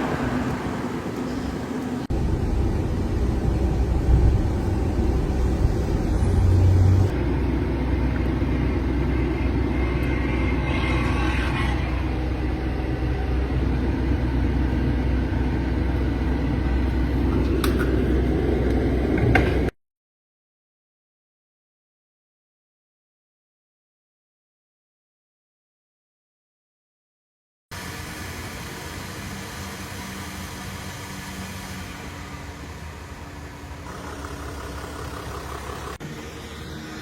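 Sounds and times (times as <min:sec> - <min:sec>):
low rumble inside van in car wash: 0:00.0 - 0:19.7, 0:27.7 - 0:37.0.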